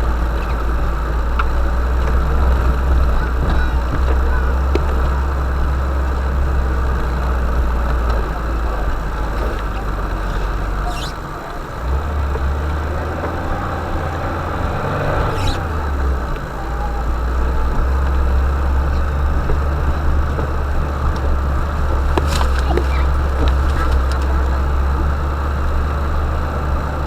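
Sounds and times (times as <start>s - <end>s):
van engine droning: 0.0s - 27.0s
knocks and rattles: 19.4s - 25.3s.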